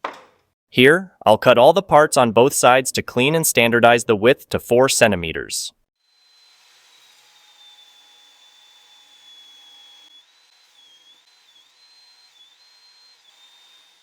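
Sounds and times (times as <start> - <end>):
table saw whining: 6.0 - 14.0.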